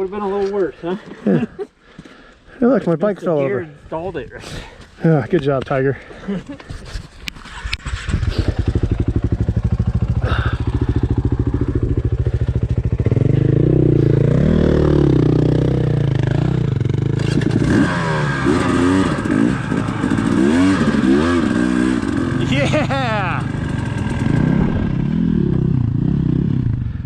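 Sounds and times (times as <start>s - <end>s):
dirt bike engine revving: 7.5s - 27.0s.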